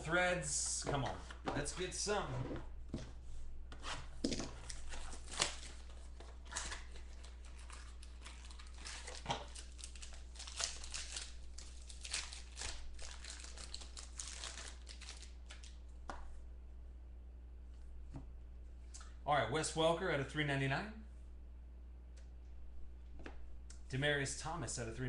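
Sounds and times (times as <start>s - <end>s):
wrapping crinkling and tearing: 4.4s - 15.8s.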